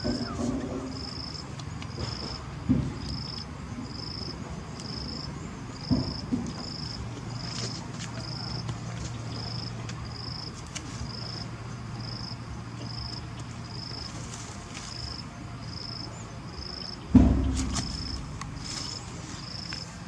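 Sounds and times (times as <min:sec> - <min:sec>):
insect chirping: 0:00.0 - 0:07.6, 0:09.3 - 0:14.2, 0:14.9 - 0:20.0
loud thump: 0:17.1 - 0:19.8.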